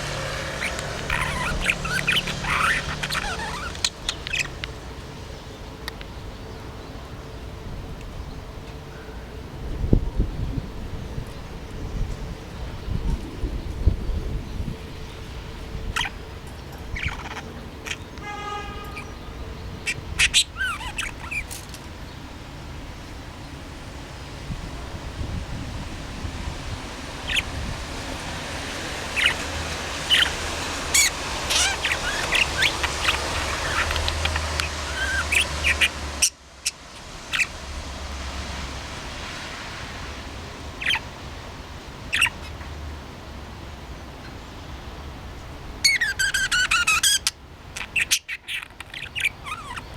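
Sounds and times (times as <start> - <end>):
budgerigar chirping: 0.0 - 4.6, 16.9 - 18.4, 19.8 - 21.6, 27.2 - 27.5, 29.2 - 29.5, 30.1 - 37.5, 42.1 - 42.5, 45.8 - 49.9.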